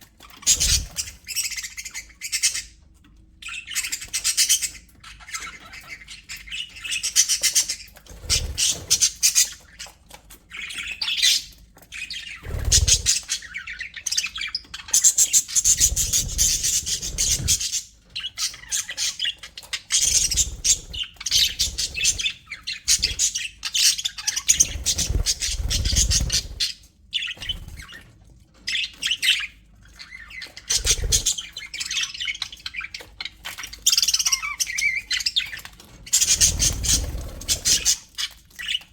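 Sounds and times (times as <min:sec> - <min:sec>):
budgerigars chattering: 0:10.6 - 0:28.0, 0:28.7 - 0:38.8.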